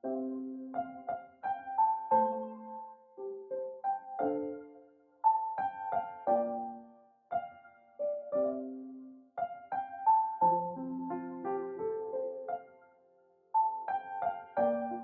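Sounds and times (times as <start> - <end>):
slow solo piano: 0.0 - 15.0.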